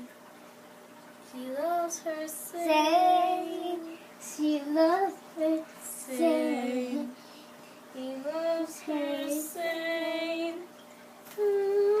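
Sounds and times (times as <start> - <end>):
child singing: 1.4 - 7.2, 8.0 - 10.7, 11.4 - 12.0.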